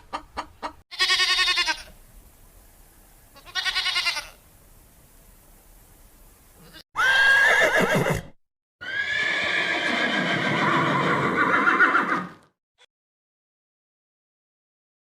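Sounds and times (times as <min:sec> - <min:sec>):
horse whinnying: 0:07.0 - 0:12.5.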